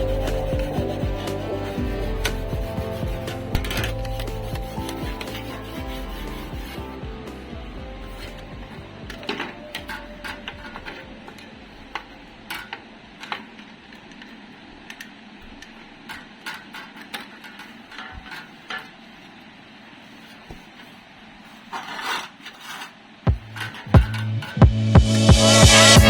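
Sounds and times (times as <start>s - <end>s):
tools clattering: 21.7s - 24.6s.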